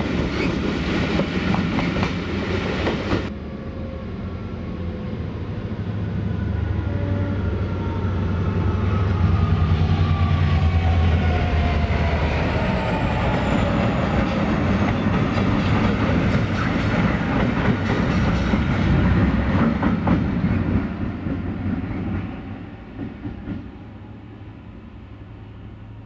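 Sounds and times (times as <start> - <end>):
diesel locomotive engines rumbling: 0.0 - 26.0.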